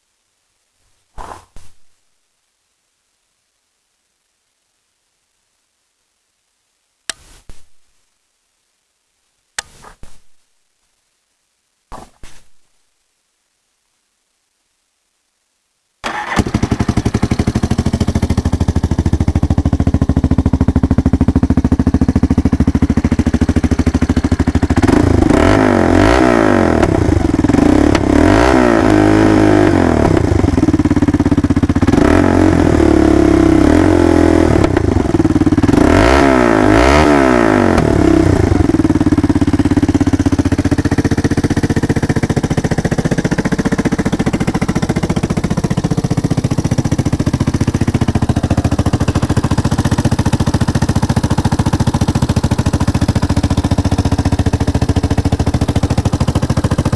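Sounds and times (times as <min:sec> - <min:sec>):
engine idling and revving: 0:16.1 - 0:56.9.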